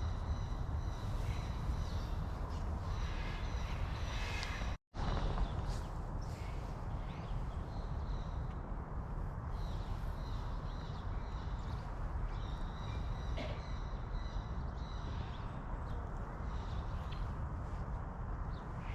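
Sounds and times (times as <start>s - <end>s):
birds calling: 0.0s - 8.6s.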